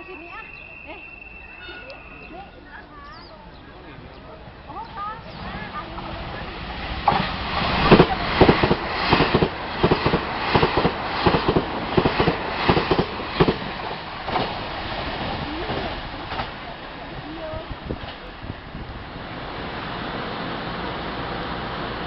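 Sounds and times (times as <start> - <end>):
train wheels clattering over rail joints: 6.9 - 18.8.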